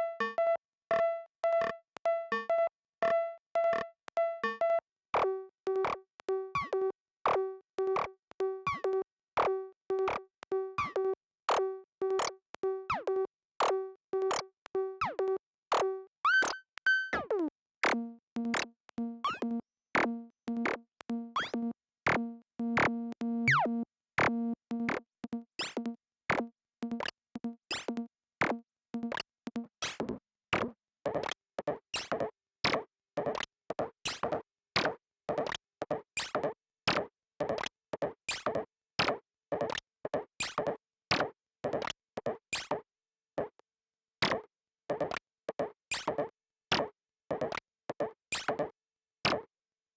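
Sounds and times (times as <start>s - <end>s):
synthesizer repeating pitched note: 17.8s - 29.7s
synthesizer low steady tone: 17.9s - 28.1s
sharp clicky percussive hits: 24.2s - 33.5s.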